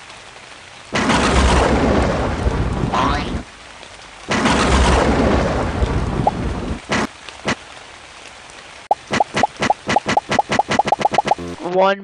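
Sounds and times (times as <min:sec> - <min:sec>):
rain hissing: 0:00.0 - 0:11.7
thunder rumble: 0:00.9 - 0:07.6.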